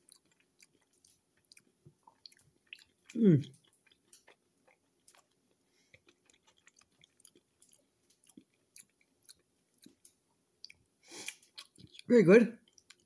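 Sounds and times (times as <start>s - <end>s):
person chewing crunchy food: 0.0s - 13.0s.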